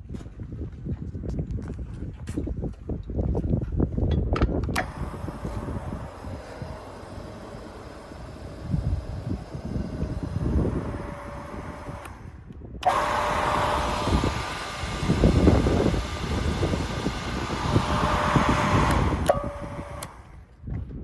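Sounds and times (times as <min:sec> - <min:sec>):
power feeder whine: 0:04.6 - 0:20.6
workpiece rushing through feeder: 0:04.8 - 0:20.4.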